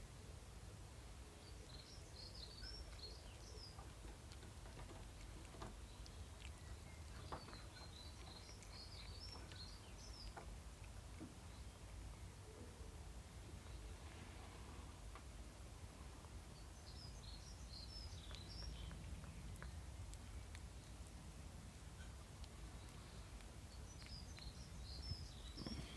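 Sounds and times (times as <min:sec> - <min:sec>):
low steady hum: 0:00.0 - 0:25.9
faint clicks: 0:03.8 - 0:11.4
faint bird twittering: 0:23.0 - 0:25.9.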